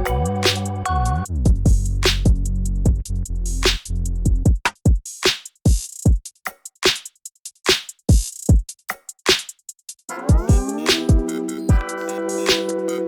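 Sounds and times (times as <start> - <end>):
held bass note: 0.0 - 1.7
drum machine beat: 0.0 - 13.0.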